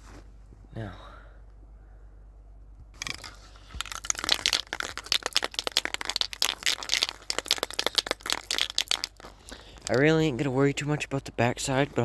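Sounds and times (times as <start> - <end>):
spray can ball rattling: 3.0 - 10.1.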